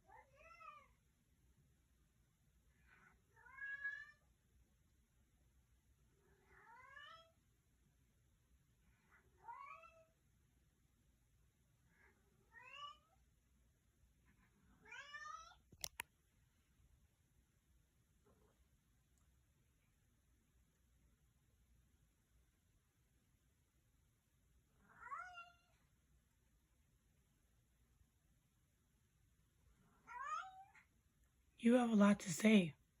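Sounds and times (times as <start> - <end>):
cat meowing: 0.0 - 0.9, 3.3 - 4.2, 6.5 - 7.4, 9.4 - 10.1, 12.5 - 13.2, 14.8 - 15.6, 24.9 - 25.8, 30.0 - 30.8
sharp clicks: 15.7 - 16.1.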